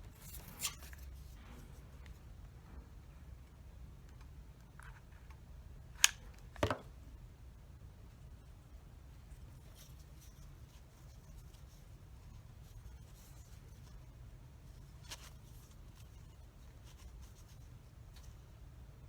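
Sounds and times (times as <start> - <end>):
hands handling cardboard and sticks: 0.0 - 2.3, 8.2 - 18.6
low steady hum: 0.0 - 19.0.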